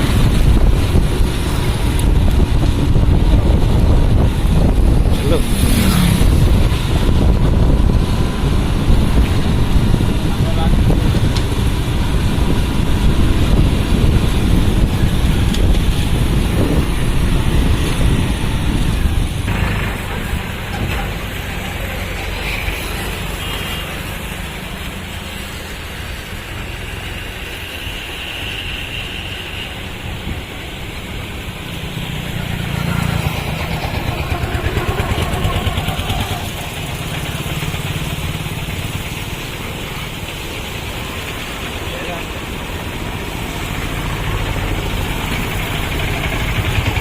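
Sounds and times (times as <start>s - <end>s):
wind on microphone: 0.0s - 23.3s
vehicle engine and road rumble: 0.0s - 47.0s.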